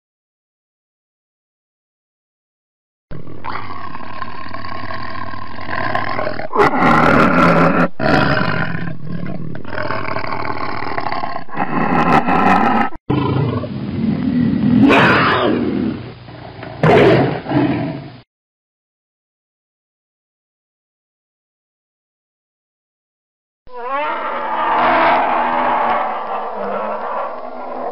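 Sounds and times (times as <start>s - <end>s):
tiger roaring: 3.2s - 18.1s, 23.7s - 27.9s.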